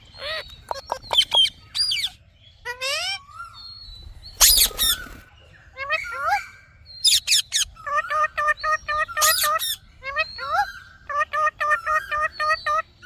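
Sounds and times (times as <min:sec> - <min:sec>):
parrot chirping: 0:00.0 - 0:03.6, 0:04.3 - 0:05.1, 0:05.8 - 0:12.9
parrot shrieking: 0:02.7 - 0:03.3, 0:05.8 - 0:10.7.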